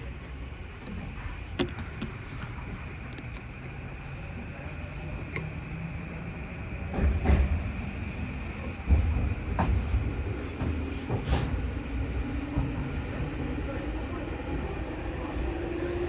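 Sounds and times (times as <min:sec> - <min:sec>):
electric train rumbling on track: 0:00.0 - 0:16.0.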